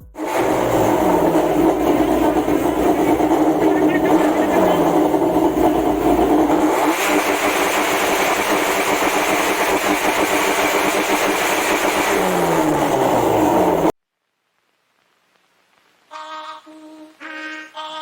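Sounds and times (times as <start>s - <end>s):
car engine running loudly: 0.1s - 14.0s.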